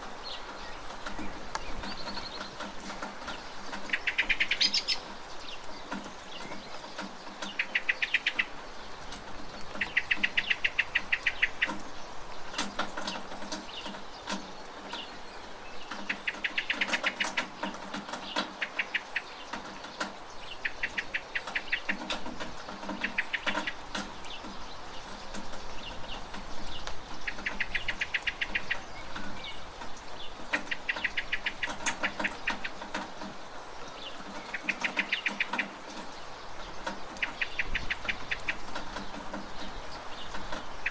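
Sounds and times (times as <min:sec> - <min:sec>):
steady rain: 0:00.0 - 0:40.9
bird trilling: 0:03.7 - 0:05.1, 0:34.1 - 0:36.0.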